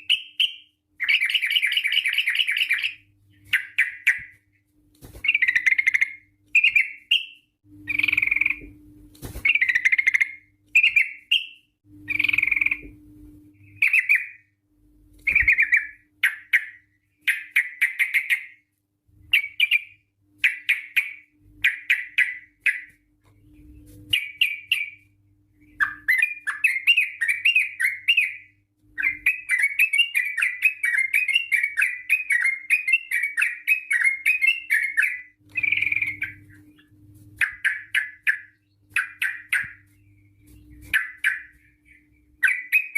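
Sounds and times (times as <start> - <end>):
bird singing bubbling phrases: 5.3 - 8.7, 9.5 - 12.9, 15.3 - 18.6, 23.5 - 42.9.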